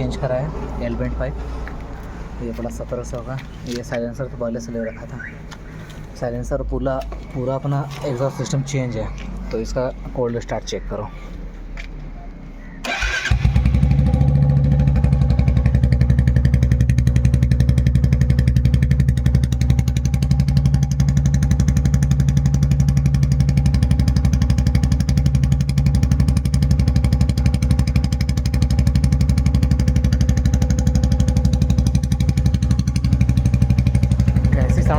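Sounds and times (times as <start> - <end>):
motorcycle engine idling: 12.9 - 34.9.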